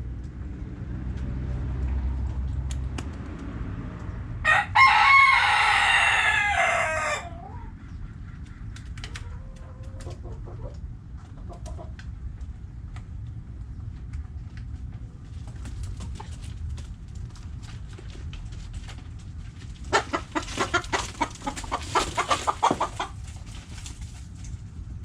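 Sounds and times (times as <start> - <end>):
rooster crowing: 4.4 - 7.6
hens clucking: 4.9 - 12.5, 19.7 - 23.6.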